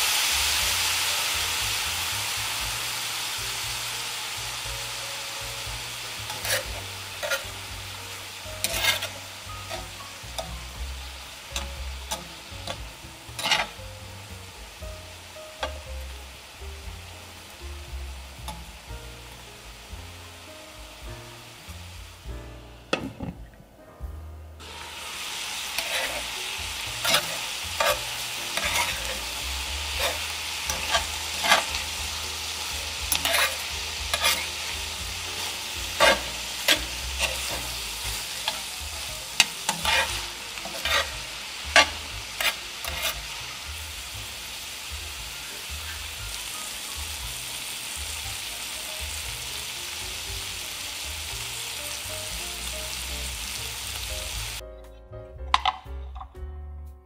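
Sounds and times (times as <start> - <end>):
meat frying sizzle: 0.0 - 23.2, 24.6 - 54.6
utensil scraping against pan: 6.2 - 7.8, 8.6 - 10.7, 11.6 - 13.8, 25.6 - 43.3.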